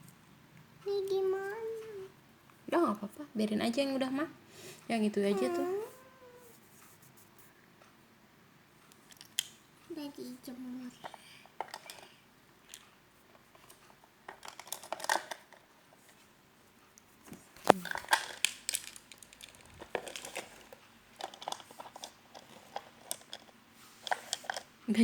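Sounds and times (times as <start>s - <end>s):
plastic toy pieces clicking: 11.0s - 12.9s, 13.6s - 15.6s, 17.6s - 24.7s.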